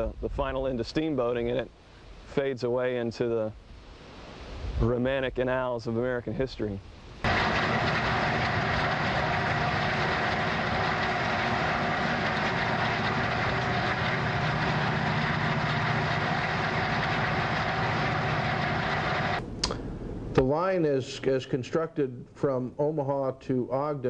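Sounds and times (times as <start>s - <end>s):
diesel engine drone: 7.3s - 19.4s
train wheels rolling on rails: 7.3s - 19.4s.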